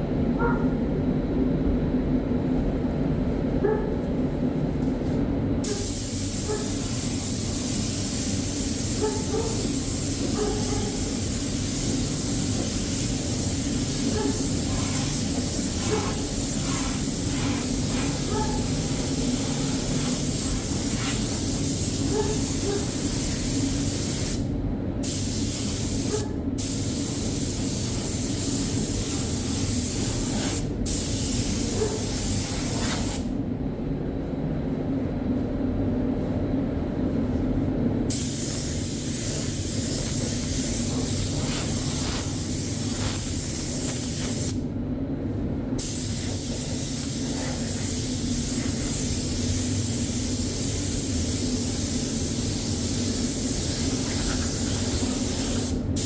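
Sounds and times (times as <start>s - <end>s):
spray gun hissing: 5.6s - 24.4s, 25.0s - 33.3s, 38.1s - 44.6s, 45.8s - 56.0s.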